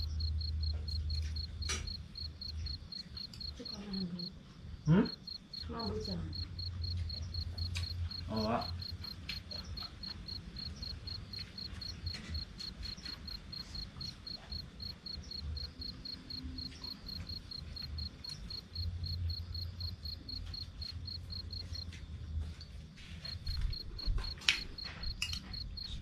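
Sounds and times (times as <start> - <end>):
cricket chirping: 0.0 - 26.0.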